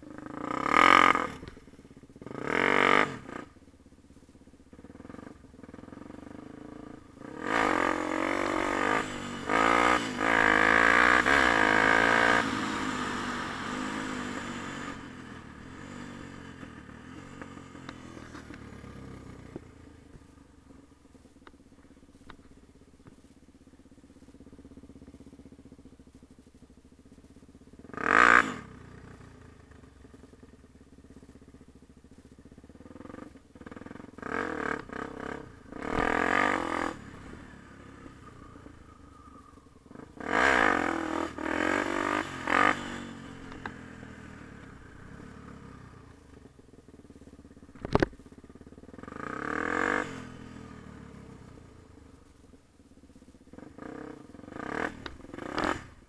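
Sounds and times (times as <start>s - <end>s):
dirt bike engine revving: 0.1s - 1.6s, 2.2s - 3.6s, 4.8s - 20.2s, 27.8s - 28.8s, 32.8s - 46.4s, 48.9s - 51.6s, 53.6s - 56.0s.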